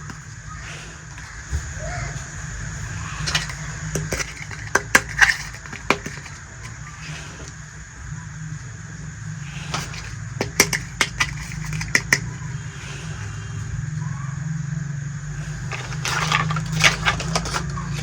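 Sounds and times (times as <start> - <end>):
steady low hum: 0.0 - 18.0
plastic toy pieces clicking: 3.2 - 6.9, 9.7 - 12.4, 15.7 - 18.0.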